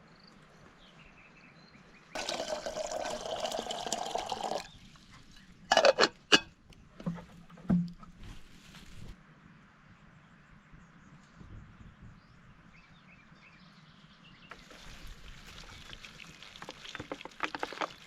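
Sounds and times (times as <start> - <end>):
liquid pouring: 2.2 - 5.9, 14.5 - 18.0.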